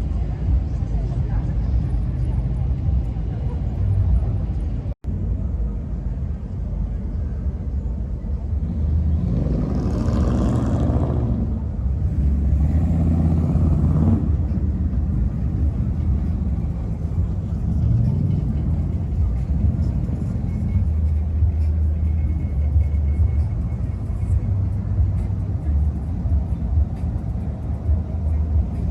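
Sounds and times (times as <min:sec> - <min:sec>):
car engines rumbling: 0:00.0 - 0:28.9
music: 0:12.2 - 0:28.9.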